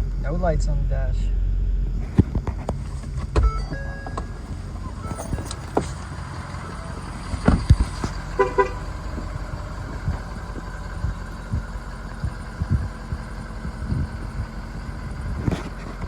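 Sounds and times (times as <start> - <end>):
diesel engine idling: 0.0 - 16.0
thumps: 2.0 - 14.6
short horn toots: 8.3 - 9.0.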